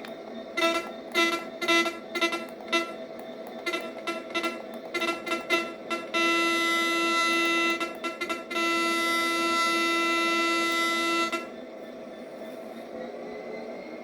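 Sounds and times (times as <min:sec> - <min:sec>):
locomotive horn: 0:00.6 - 0:03.0, 0:03.6 - 0:11.6.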